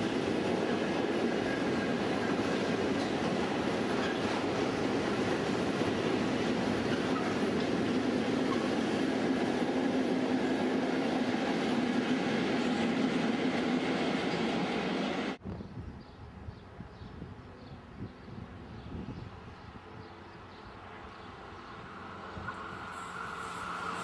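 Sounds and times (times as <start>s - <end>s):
wheels clickety-clack: 0.0s - 10.1s
freight train rumbling past: 0.0s - 15.4s, 18.2s - 24.0s.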